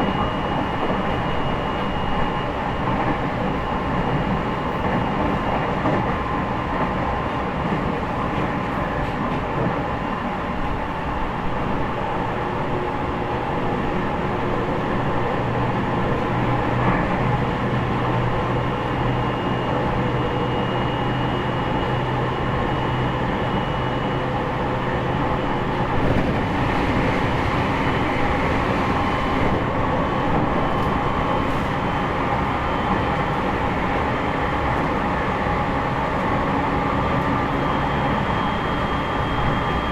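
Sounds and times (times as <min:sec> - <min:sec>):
train motor and wheel noise: 0:00.0 - 0:39.9.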